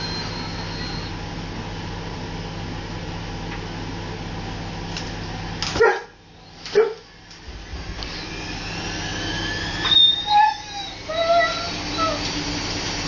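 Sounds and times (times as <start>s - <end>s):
washing machine spin hum: 0.0s - 13.0s
dog barking: 5.8s - 7.1s.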